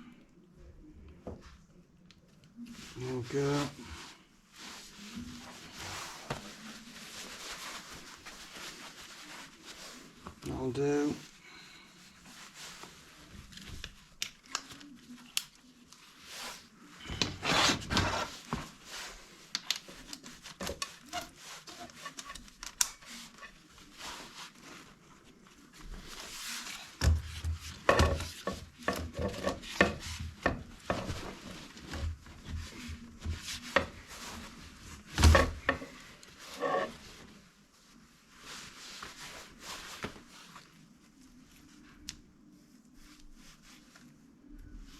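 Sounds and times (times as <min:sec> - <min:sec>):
scraping and rubbing in chimney: 0:27.4 - 0:37.2.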